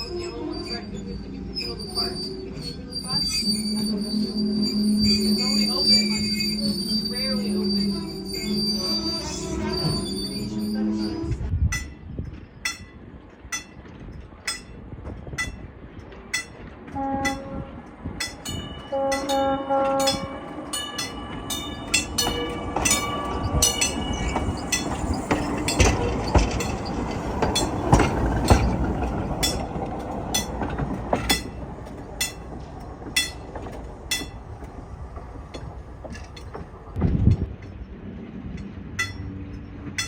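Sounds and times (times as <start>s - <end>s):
train rumble passing: 0.0s - 40.0s
train horn blasts: 16.9s - 17.9s, 18.9s - 20.5s.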